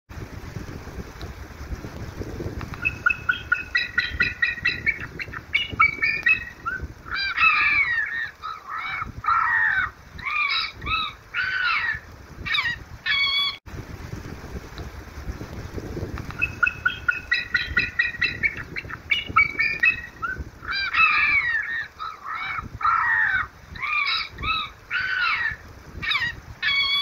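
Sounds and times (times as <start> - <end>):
low steady rumble: 0.1 - 27.0
birds honking calls: 2.8 - 13.6, 16.3 - 27.0.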